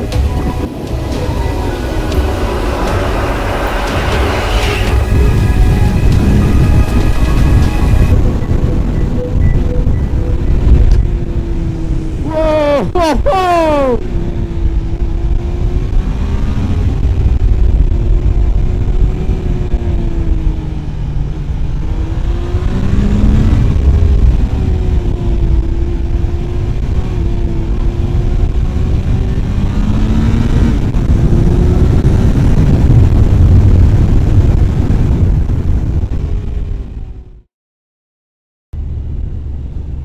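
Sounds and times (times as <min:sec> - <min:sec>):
motorcycle engine running: 0:00.0 - 0:12.2
wind rush on microphone: 0:00.0 - 0:37.4.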